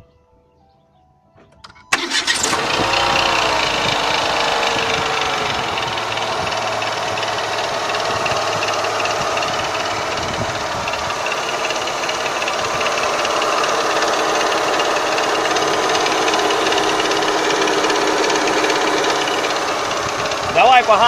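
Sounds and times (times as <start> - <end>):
metallic chatter from engine: 1.6 - 21.0
petrol engine idling: 1.6 - 21.0.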